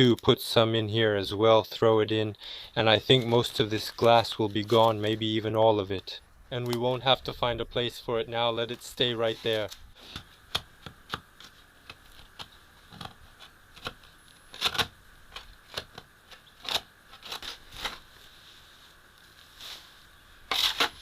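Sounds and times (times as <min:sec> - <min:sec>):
shovel digging into soil: 0:20.5 - 0:21.0.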